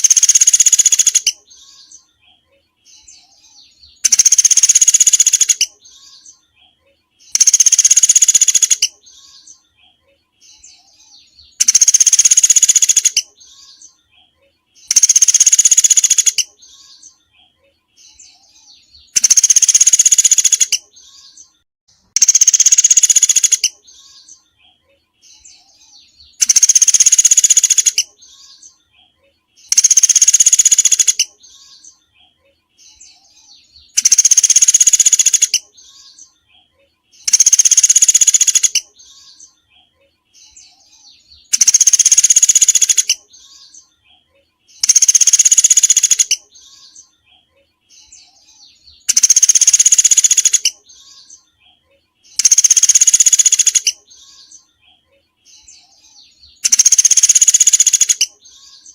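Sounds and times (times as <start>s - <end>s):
songbird rapid call: 0.0s - 1.4s, 3.9s - 5.8s, 7.3s - 9.0s, 11.5s - 13.4s, 14.9s - 16.5s, 19.0s - 21.2s, 22.1s - 23.8s, 26.3s - 28.1s, 29.7s - 31.4s, 33.8s - 36.1s, 37.2s - 38.9s, 41.4s - 43.6s, 44.8s - 46.9s, 49.0s - 51.3s, 52.3s - 54.0s, 56.5s - 58.9s.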